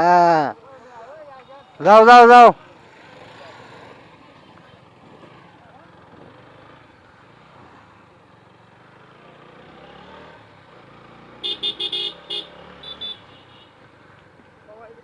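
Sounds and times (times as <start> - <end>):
motorcycle rumble: 2.6 - 15.0
vehicle horn tooting: 11.4 - 13.8.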